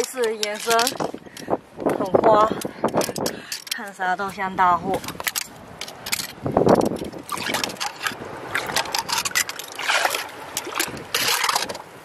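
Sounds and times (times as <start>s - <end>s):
wind buffeting microphone: 0.0s - 12.0s
seawater washing among rocks: 4.3s - 12.0s.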